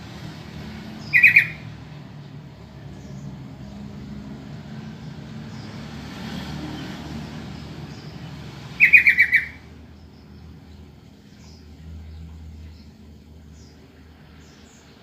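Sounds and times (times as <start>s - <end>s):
bird chattering burst: 1.0s - 1.6s, 8.8s - 9.6s.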